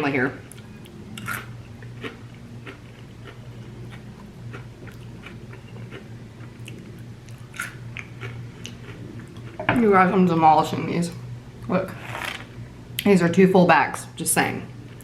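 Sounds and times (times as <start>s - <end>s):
steady low hum: 0.0s - 15.0s
chewing and crunching chips: 0.5s - 9.6s.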